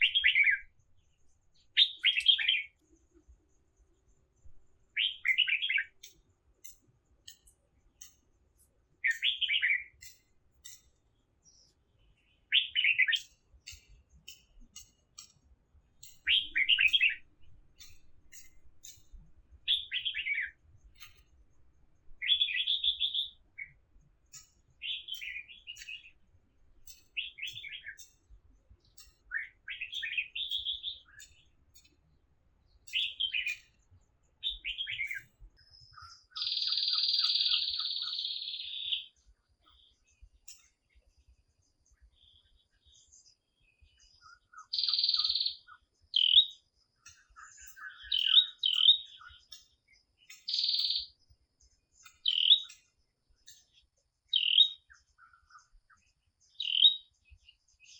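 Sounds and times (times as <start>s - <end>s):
songbird singing: 0.0s - 57.9s
faint ticks: 5.9s - 9.4s, 10.0s - 11.8s, 13.1s - 19.4s, 26.8s - 32.1s, 52.0s - 53.8s.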